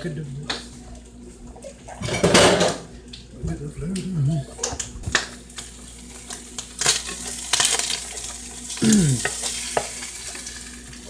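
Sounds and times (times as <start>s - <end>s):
food sizzling in frying pan: 5.1s - 11.0s.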